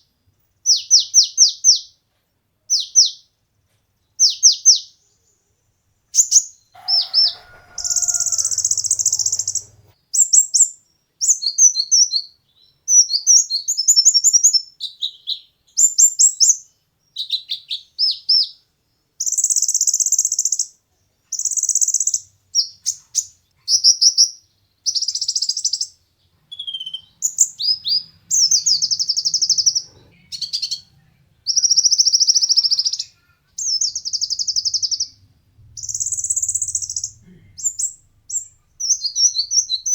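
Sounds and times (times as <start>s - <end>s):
bird buzzy trills and chirps: 6.1s - 10.7s, 31.5s - 39.9s.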